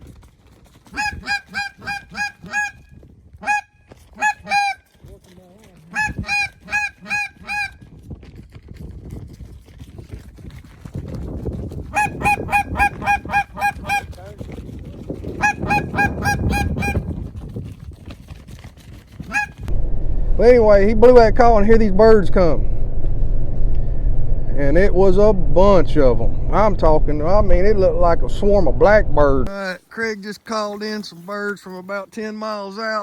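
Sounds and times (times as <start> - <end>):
goose call honks and clucks: 0.9 - 7.8, 11.9 - 14.2, 15.3 - 17.2, 19.2 - 19.7
low rushing noise: 19.7 - 29.5.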